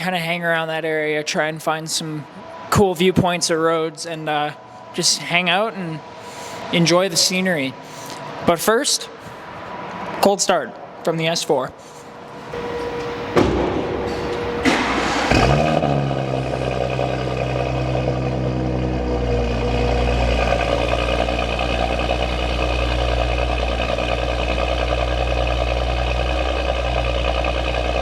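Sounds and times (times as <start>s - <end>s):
car engine idling high: 12.6s - 28.0s.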